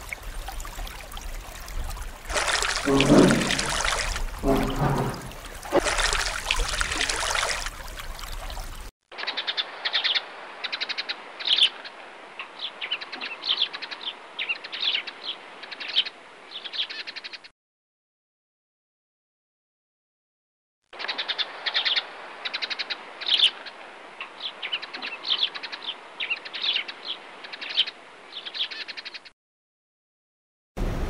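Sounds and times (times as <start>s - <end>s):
water splashing: 0.0s - 8.9s.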